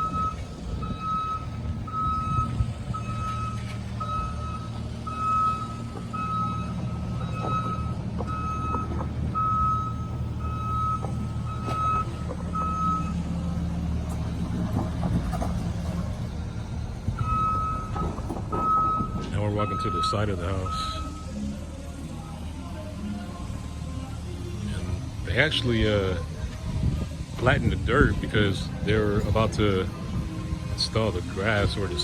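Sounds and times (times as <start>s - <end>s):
reversing alarm beeping: 0.0s - 15.3s, 16.6s - 21.6s
diesel engine running: 0.0s - 32.0s.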